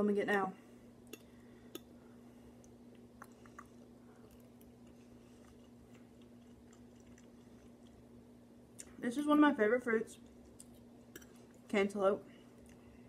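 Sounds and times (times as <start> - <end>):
close-up chewing: 2.6 - 8.2.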